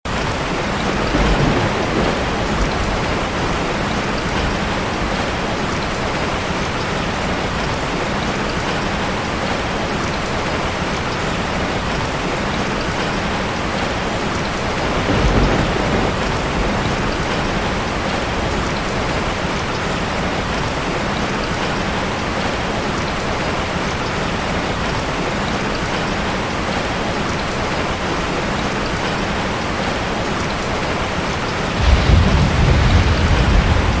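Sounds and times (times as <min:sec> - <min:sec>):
heavy rain hissing: 0:00.2 - 0:34.0
low rumbles: 0:31.8 - 0:34.0.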